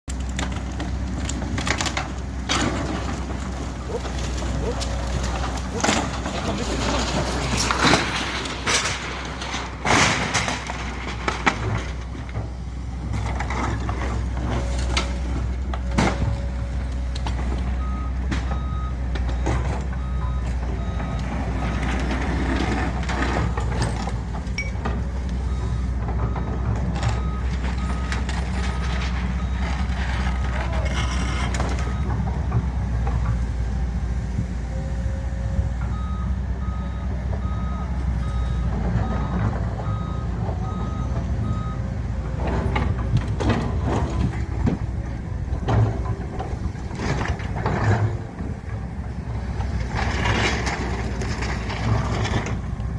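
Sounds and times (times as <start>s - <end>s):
crushing machine rumbling: 0.0s - 52.9s
reversing alarm beeping: 17.7s - 22.5s, 23.4s - 30.6s, 34.7s - 42.9s.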